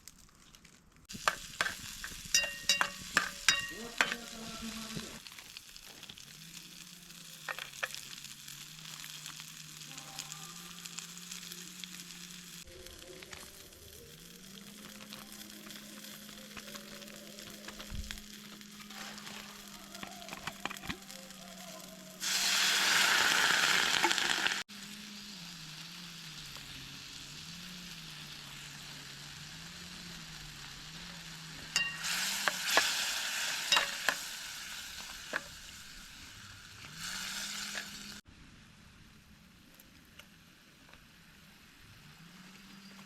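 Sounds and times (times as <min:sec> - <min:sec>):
food sizzling in a hot pan: 0:01.0 - 0:38.3
utensil tapping pan: 0:01.1 - 0:05.0, 0:33.6 - 0:34.3.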